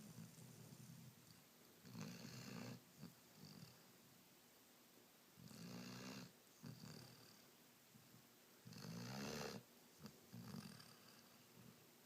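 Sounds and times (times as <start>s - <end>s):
puppy snoring: 0.0s - 3.9s, 5.4s - 7.4s, 8.6s - 11.7s.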